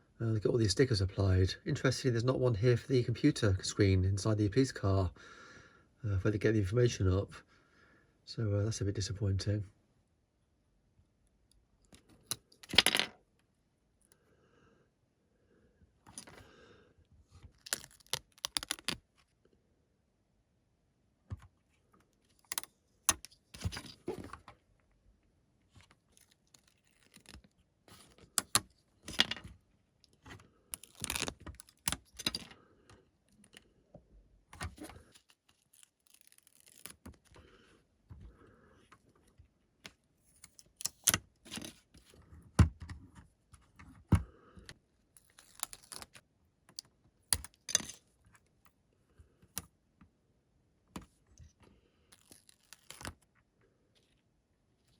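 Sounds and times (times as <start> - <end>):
plastic pieces clicking: 17.6 - 19.0, 30.8 - 32.5.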